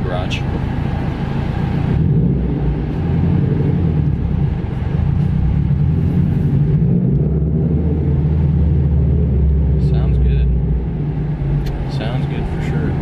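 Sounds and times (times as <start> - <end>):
car engine rumbling while driving: 0.0 - 13.0.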